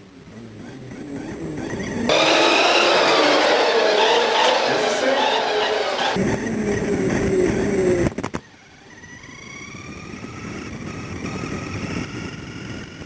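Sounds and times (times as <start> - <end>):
loud rush: 2.1 - 6.2
toy car motor whine: 8.4 - 13.0.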